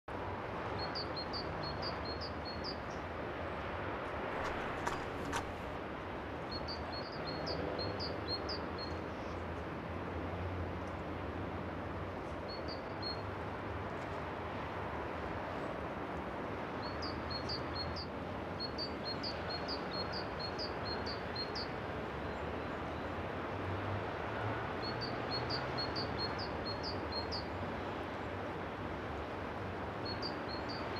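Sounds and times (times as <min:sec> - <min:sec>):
small bird chirping: 0:00.8 - 0:03.0, 0:06.5 - 0:09.4, 0:12.5 - 0:13.2, 0:16.8 - 0:21.7, 0:24.8 - 0:27.6, 0:30.0 - 0:30.9.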